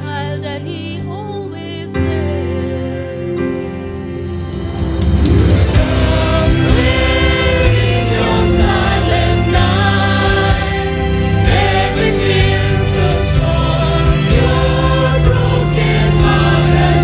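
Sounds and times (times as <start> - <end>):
church choir singing: 0.0 - 17.0
sustained instrumental accompaniment: 0.0 - 17.0.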